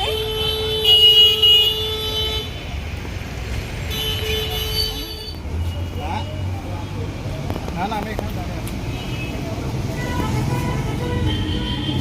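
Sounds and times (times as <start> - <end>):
vehicle horns: 0.0 - 2.8, 3.8 - 6.4, 8.8 - 12.0
road traffic rumble: 0.0 - 12.0.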